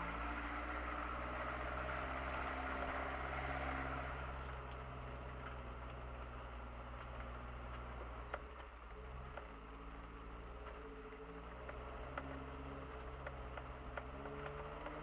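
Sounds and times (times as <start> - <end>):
car engine running at low speed: 0.0 - 15.0
faint clicks: 4.4 - 15.0.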